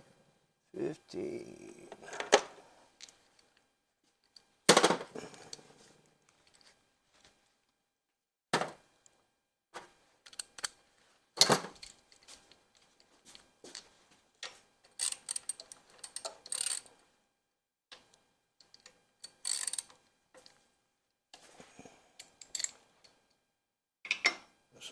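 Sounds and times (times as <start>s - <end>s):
ratchet wrench clicking: 15.0s - 16.9s, 19.2s - 19.9s.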